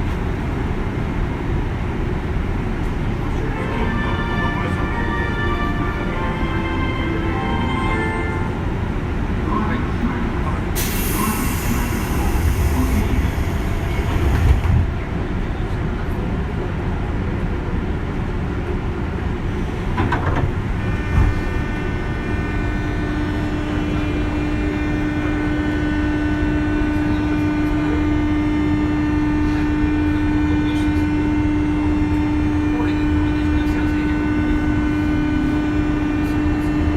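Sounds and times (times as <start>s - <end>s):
electric hum of train: 0.0s - 36.9s
train wheel and rail noise: 0.0s - 36.9s
hiss: 10.8s - 13.2s.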